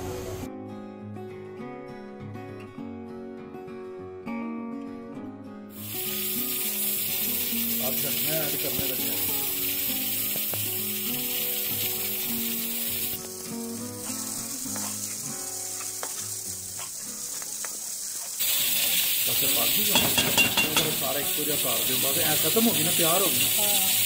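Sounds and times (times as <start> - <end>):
soft background music: 0.0 - 17.7
curry sizzling in oil: 5.7 - 24.0.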